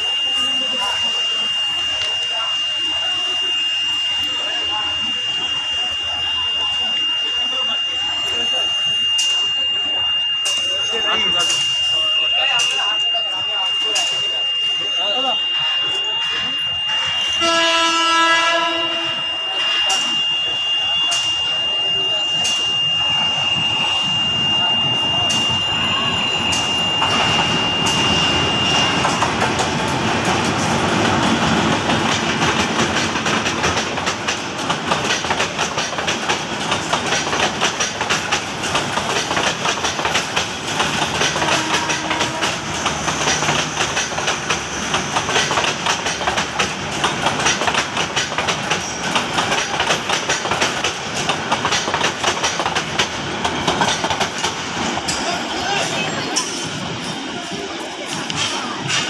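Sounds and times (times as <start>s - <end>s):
diesel locomotive engine: 0.0s - 59.0s
train wheels clickety-clack: 22.4s - 22.8s, 26.4s - 59.0s.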